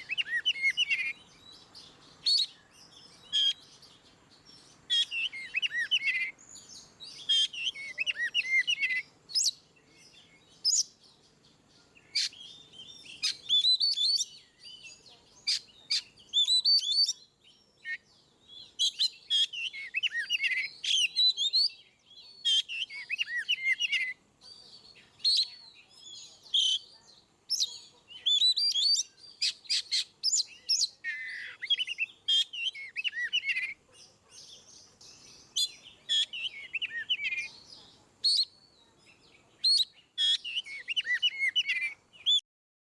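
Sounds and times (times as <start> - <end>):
bird whistling song with clicks: 13.1 - 14.3.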